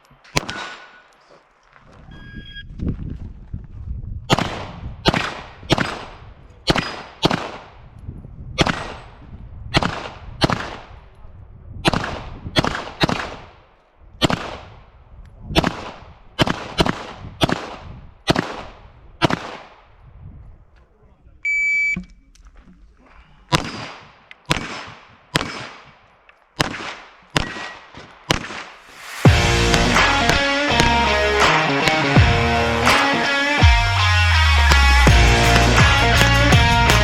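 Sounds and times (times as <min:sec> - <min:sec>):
pistol gunshots with echo: 0:00.2 - 0:01.1, 0:04.3 - 0:07.8, 0:08.6 - 0:11.0, 0:11.8 - 0:13.6, 0:14.2 - 0:14.9, 0:15.6 - 0:19.9, 0:23.5 - 0:28.8, 0:29.7 - 0:32.2
shot timer beep: 0:21.5 - 0:22.1.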